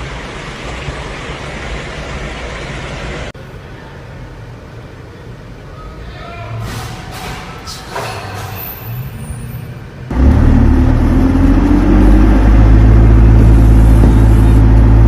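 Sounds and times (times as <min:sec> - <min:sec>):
road noise: 0:00.0 - 0:15.0
vehicle engine rumbling: 0:06.6 - 0:15.0.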